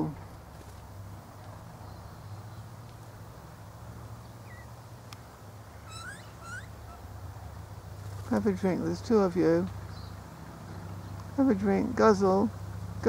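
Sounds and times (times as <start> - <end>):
faint bird chirp: 4.2 - 4.8, 5.8 - 7.1
bird rising calls: 4.2 - 5.0, 5.7 - 7.4.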